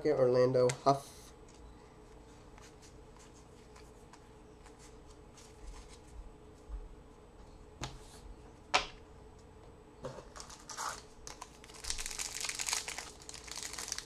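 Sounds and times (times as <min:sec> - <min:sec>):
wrapper tearing and crinkling: 0:10.4 - 0:14.0.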